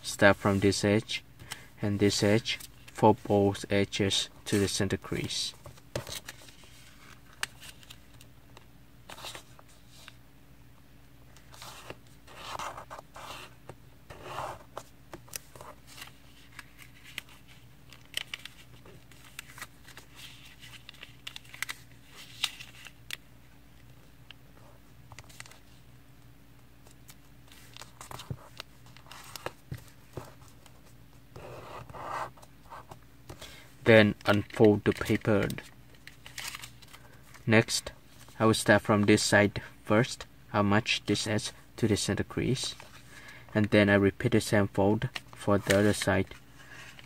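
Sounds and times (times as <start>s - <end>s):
paper rustling while folded: 15.3s - 23.1s.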